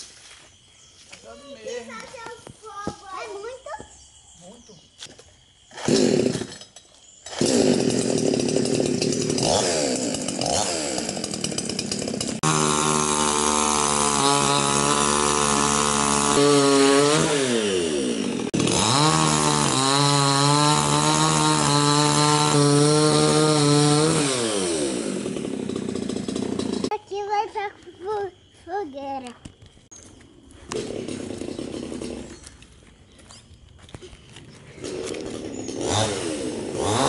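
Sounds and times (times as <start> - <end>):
chainsaw cutting wood: 5.7 - 26.9, 30.6 - 32.8, 34.7 - 37.0.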